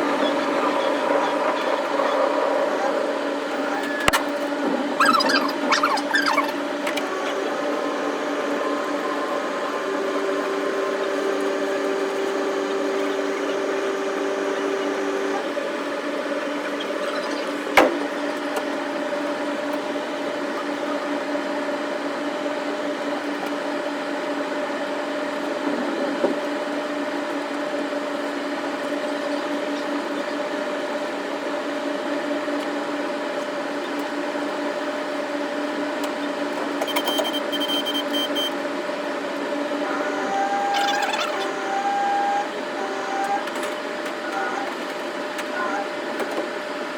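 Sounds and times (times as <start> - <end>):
electric train hum and drone: 0.0 - 17.2.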